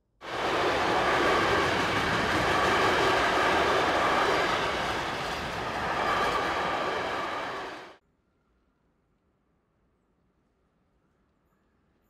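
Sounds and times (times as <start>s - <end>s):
freight train wheels rumbling: 0.2s - 8.0s.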